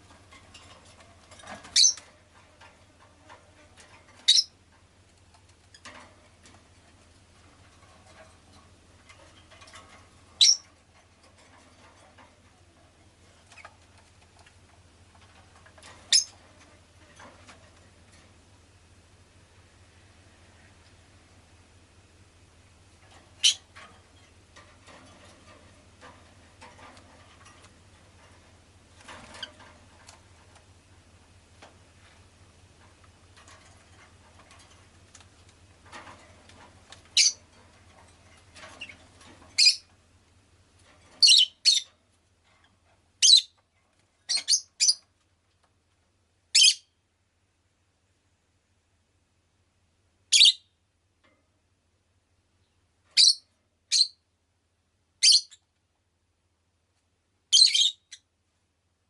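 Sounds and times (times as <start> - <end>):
lovebird chirping: 1.7 - 2.0, 4.2 - 4.5, 10.4 - 10.6, 16.1 - 16.3, 23.4 - 23.6, 37.2 - 37.4, 39.6 - 39.9, 41.2 - 41.9, 43.2 - 43.6, 44.3 - 45.0, 46.5 - 46.9, 50.3 - 50.7, 53.2 - 54.2, 55.2 - 55.6, 57.5 - 58.2.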